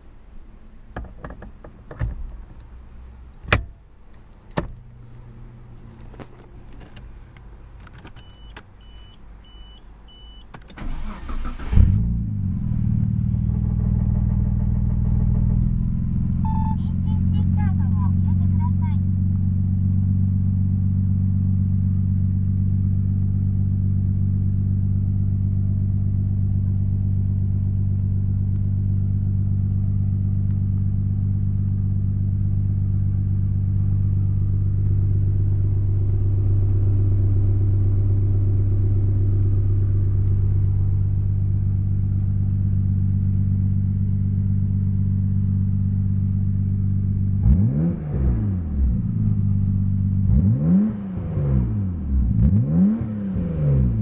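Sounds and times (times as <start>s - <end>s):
car engine idling: 0.0s - 50.8s
engine revving: 10.8s - 19.0s, 47.0s - 54.0s.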